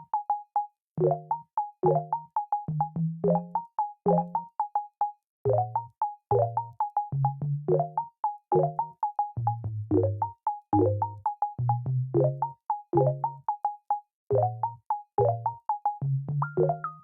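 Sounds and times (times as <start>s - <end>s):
bouncy synthesizer tune: 1.0s - 4.9s, 5.5s - 17.0s.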